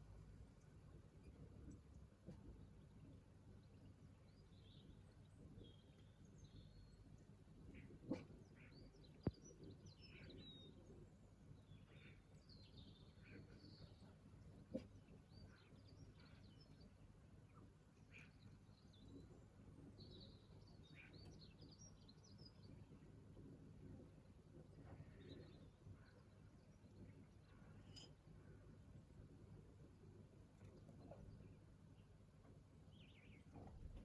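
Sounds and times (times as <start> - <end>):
birds chirping and twittering: 0.4 - 34.0.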